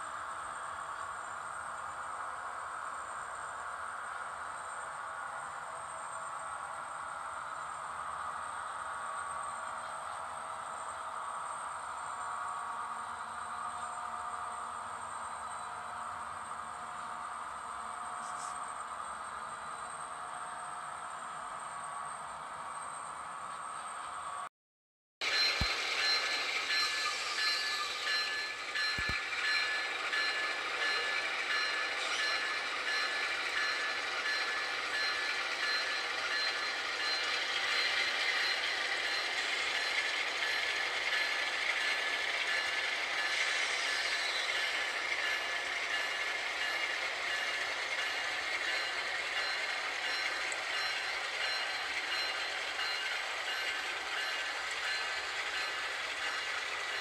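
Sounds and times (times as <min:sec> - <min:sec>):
high-pitched whine: 0:25.2 - 0:57.0
train rumbling on rails: 0:25.2 - 0:57.0.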